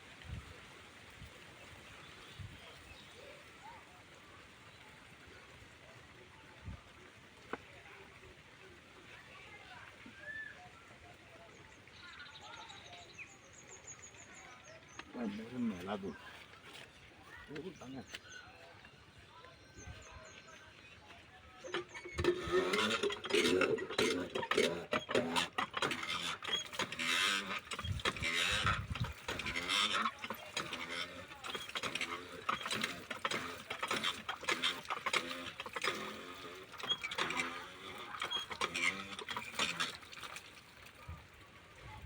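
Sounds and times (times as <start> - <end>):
machinery clattering and knocking: 21.6 - 40.5.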